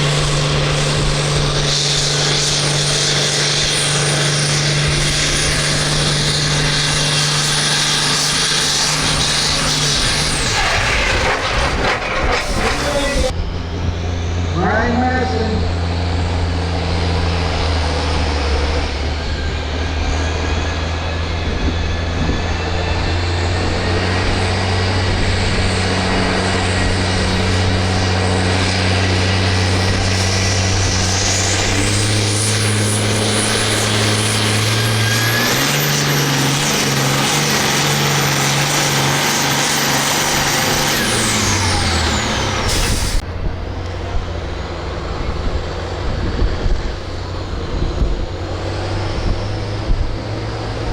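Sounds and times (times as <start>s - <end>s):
sudden sharp break: 0.0s - 19.4s, 23.3s - 50.4s
high whine: 0.0s - 50.9s
tractor engine running under load: 0.0s - 50.9s.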